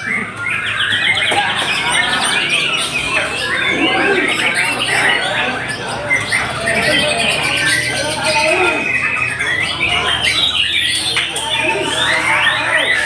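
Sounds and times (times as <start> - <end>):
birds singing: 0.0 - 13.0.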